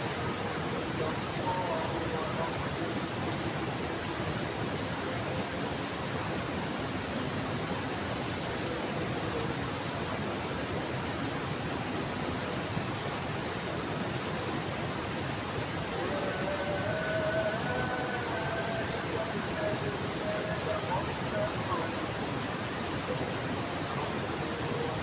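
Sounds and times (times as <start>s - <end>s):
heavy rain falling: 13.6s - 25.0s.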